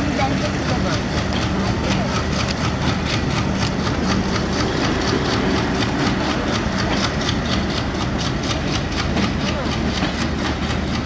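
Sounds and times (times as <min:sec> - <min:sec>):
diesel engine drone: 0:00.0 - 0:11.0
rapid even clicking of wheels: 0:00.3 - 0:11.0.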